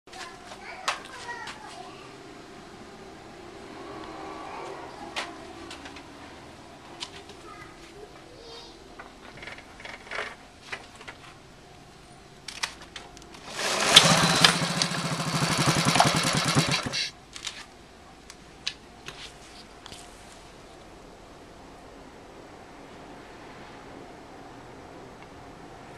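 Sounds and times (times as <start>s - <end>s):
small engine running: 13.4s - 17.1s.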